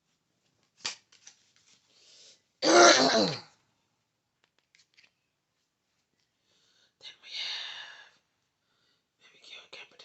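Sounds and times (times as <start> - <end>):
person clearing throat: 2.6 - 3.5.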